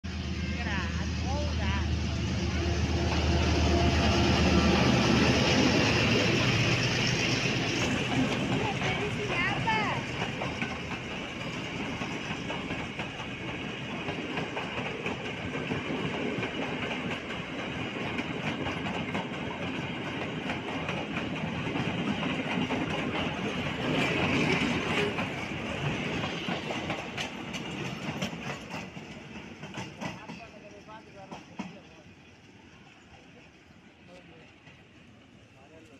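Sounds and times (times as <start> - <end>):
train rolling rumble: 0.0 - 35.9
wheels clacking over rail joints: 3.0 - 32.1.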